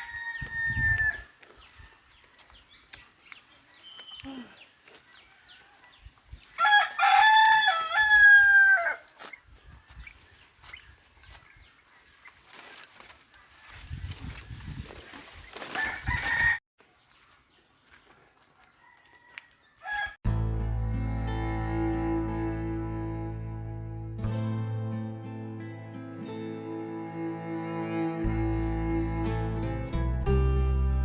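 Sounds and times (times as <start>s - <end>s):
rooster crowing: 0.0s - 1.3s, 6.6s - 9.1s, 15.8s - 16.6s, 18.6s - 20.2s
small birds chirping: 1.4s - 6.6s, 9.2s - 13.6s.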